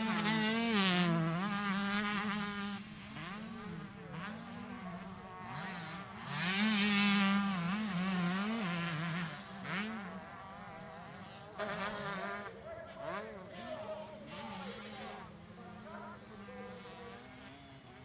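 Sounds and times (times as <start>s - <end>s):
motocross bike engines buzzing: 0.0s - 18.0s.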